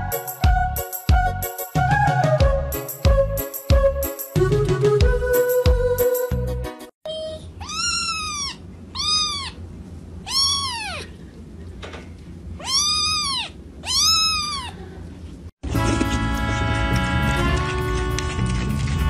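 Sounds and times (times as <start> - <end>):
kitten meowing: 7.1 - 9.6, 10.2 - 11.2, 12.6 - 14.8.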